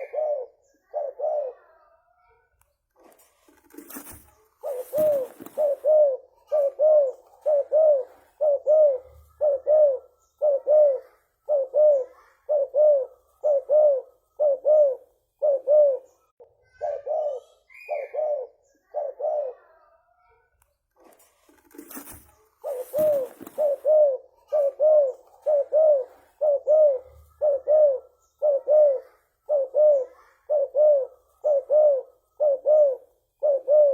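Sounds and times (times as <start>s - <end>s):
dove cooing: 0.0s - 1.8s, 3.6s - 19.9s, 21.6s - 33.9s
brief rustle: 2.9s - 5.8s, 20.9s - 23.9s.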